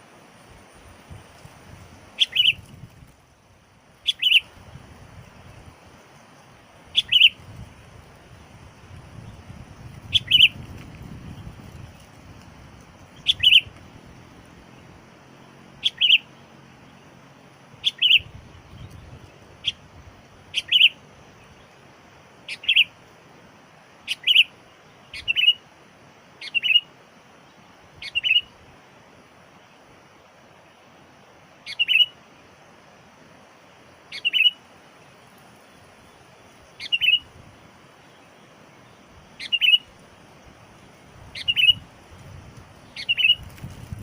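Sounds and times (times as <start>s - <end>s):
bulbul calling: 2.2s - 2.7s, 4.0s - 4.5s, 6.9s - 7.4s, 10.0s - 10.6s, 13.0s - 14.0s, 15.8s - 16.4s, 17.8s - 19.9s, 20.5s - 21.0s, 22.4s - 23.0s, 24.0s - 25.6s, 26.4s - 26.9s, 28.0s - 28.5s, 31.6s - 32.2s, 34.1s - 34.6s, 36.6s - 37.3s, 39.3s - 40.0s, 41.3s - 41.9s, 42.8s - 43.7s.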